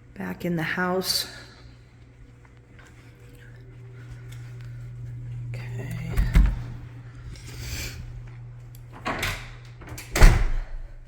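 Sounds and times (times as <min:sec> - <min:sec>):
steady low hum: 0:00.0 - 0:11.0
door shutting with heavy thump: 0:09.0 - 0:10.8.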